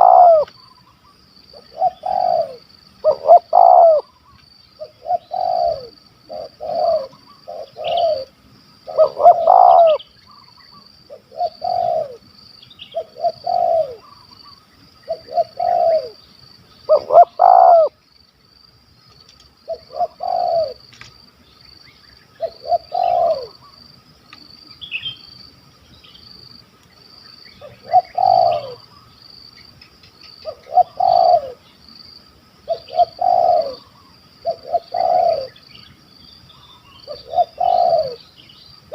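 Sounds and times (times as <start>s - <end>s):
doves cooing: 0.0s - 12.3s, 12.9s - 16.3s, 16.9s - 18.0s, 19.6s - 20.9s, 22.4s - 25.1s, 27.0s - 29.1s, 30.2s - 31.7s, 32.6s - 35.9s, 36.5s - 38.4s.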